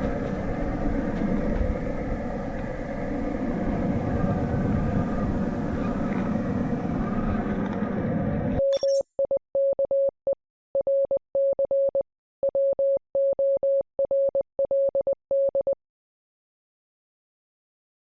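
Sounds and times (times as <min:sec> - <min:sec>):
electronic beep pulses: 0:08.6 - 0:10.1.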